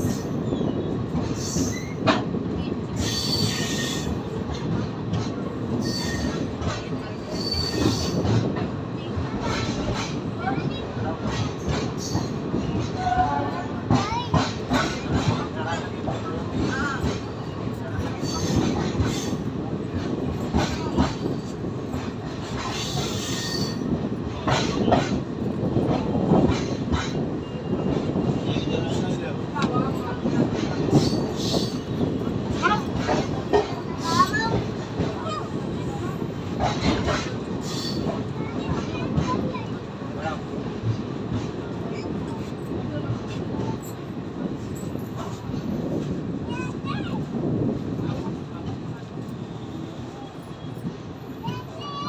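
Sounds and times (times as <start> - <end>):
train wheels rumbling on rails: 0.0 - 52.0
high wheel squeal: 5.8 - 6.4, 7.3 - 8.2.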